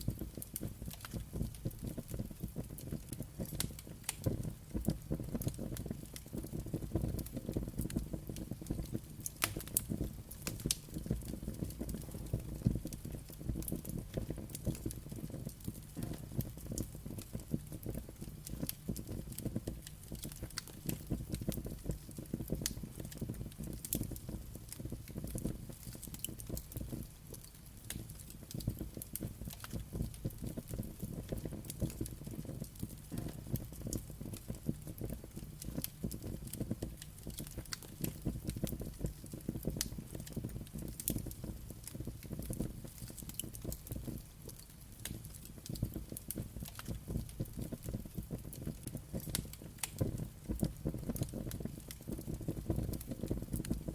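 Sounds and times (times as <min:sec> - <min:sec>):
low fire rumble: 0:00.0 - 0:53.9
wood fire crackling and popping: 0:00.0 - 0:53.9.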